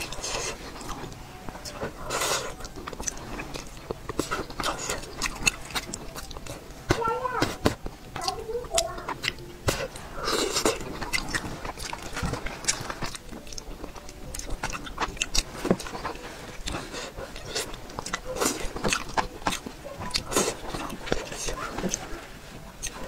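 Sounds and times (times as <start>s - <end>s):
person chewing: 0.0s - 23.0s.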